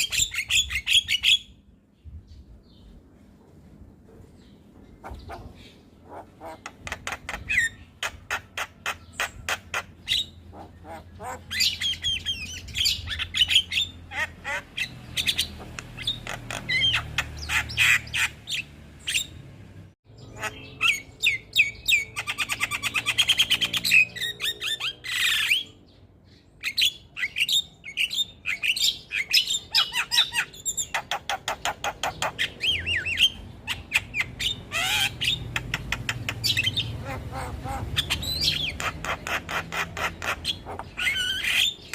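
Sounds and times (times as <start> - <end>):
bird chattering song: 0.0 - 3.0, 4.3 - 19.5, 20.1 - 41.9.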